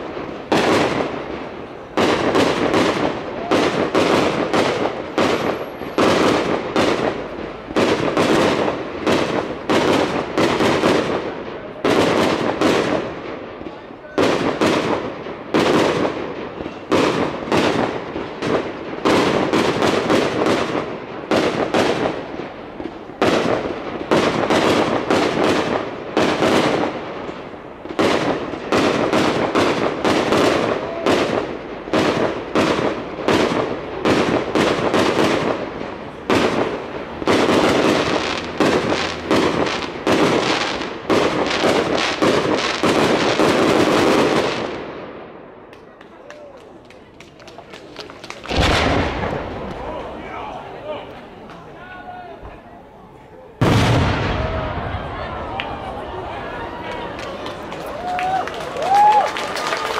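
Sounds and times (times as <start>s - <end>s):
firework shells bursting: 47.8s - 50.2s.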